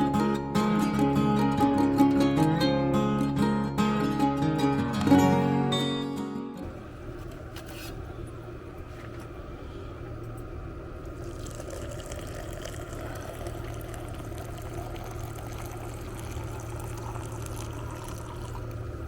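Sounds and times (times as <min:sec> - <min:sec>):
low hum: 0:06.6 - 0:19.0
running water trickling: 0:11.0 - 0:19.0.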